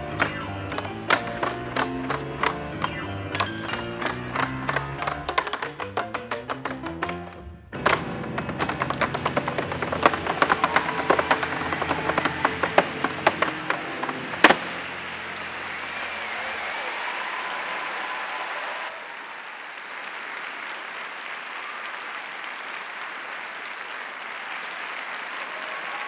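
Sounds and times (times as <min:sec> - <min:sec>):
audience applauding: 0:00.0 - 0:07.2, 0:07.8 - 0:26.0
tap shoes tapping: 0:00.0 - 0:15.0
music: 0:00.0 - 0:16.2
tap shoe stamp: 0:03.4 - 0:14.7.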